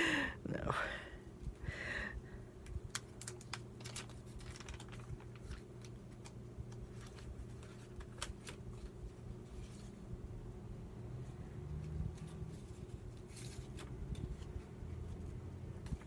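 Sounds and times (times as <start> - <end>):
faint steady hum: 0.0 - 16.0
hands handling paper: 2.6 - 10.3, 11.7 - 16.0.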